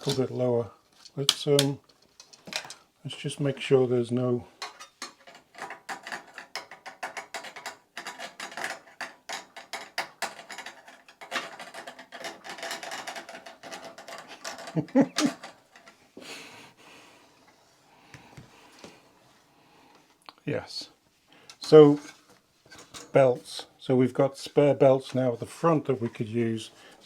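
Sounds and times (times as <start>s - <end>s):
scraping rattle of parts: 0.0s - 2.9s, 4.5s - 16.0s, 21.5s - 23.7s.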